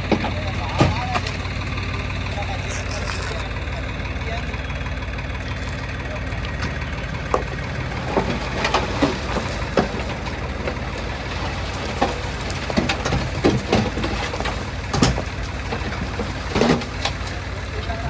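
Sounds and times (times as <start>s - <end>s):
diesel engine running at low revs: 0.0s - 18.0s.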